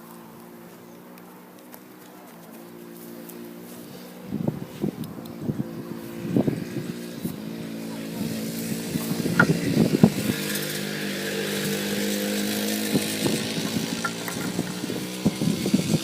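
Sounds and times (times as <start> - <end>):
quad bike engine running: 0.0 - 16.0
sharp knocks: 9.3 - 9.7, 13.6 - 14.8.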